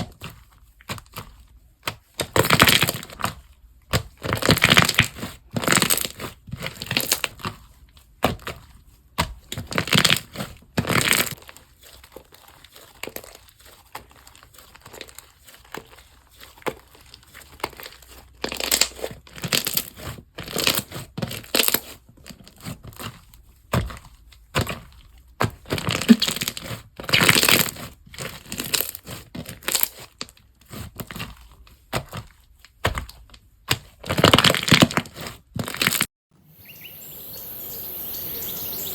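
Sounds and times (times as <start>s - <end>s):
slime squeezed crackling: 25.9s - 27.6s.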